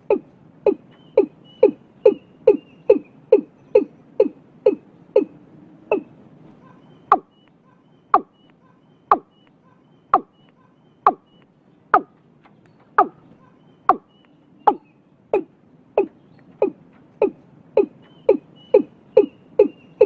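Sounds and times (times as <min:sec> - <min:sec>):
watercock calling deep notes: 0:00.0 - 0:06.1, 0:06.7 - 0:12.2, 0:12.8 - 0:20.0.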